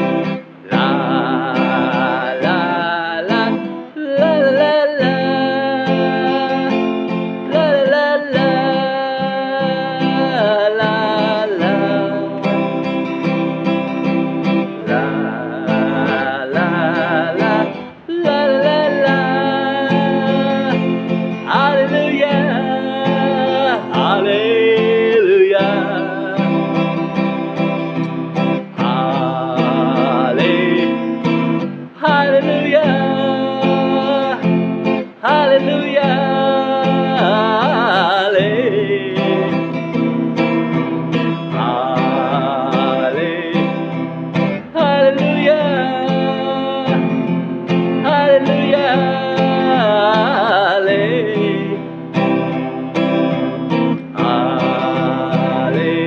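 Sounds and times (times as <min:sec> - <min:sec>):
acoustic guitar chords: 0:00.0 - 0:56.0
wordless singing: 0:00.0 - 0:56.0.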